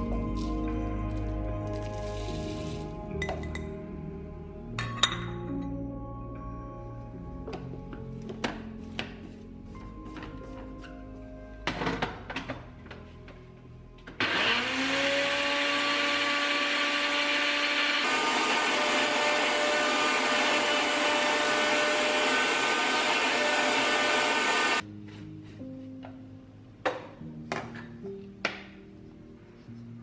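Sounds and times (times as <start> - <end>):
mixer grinder grinding spices: 14.2 - 24.8.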